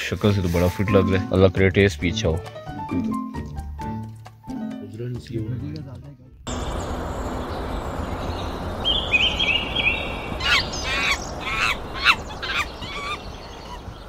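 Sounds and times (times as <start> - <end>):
birds chirping: 6.5 - 14.0
falling whistled bird notes: 6.5 - 14.0
steady rushing noise: 6.5 - 14.0.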